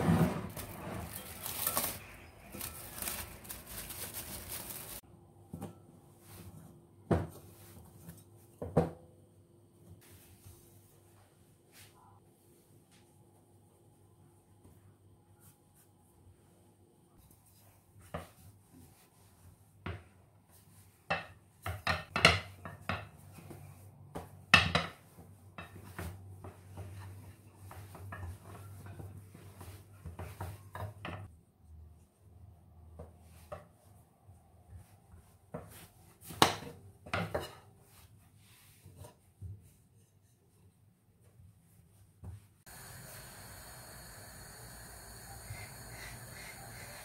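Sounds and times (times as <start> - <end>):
dishes and utensils clinking: 0.5 - 3.3.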